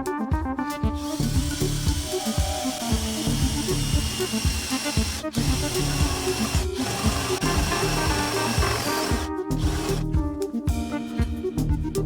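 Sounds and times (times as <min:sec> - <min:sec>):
background music: 0:00.0 - 0:12.0
power tool whining: 0:01.0 - 0:10.0.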